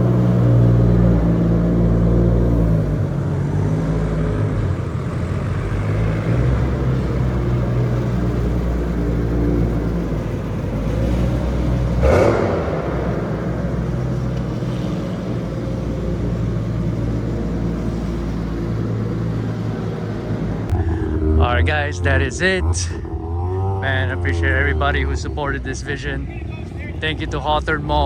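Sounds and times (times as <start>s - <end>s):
car engine running: 0.0s - 28.0s
loud rush of noise: 12.0s - 15.8s.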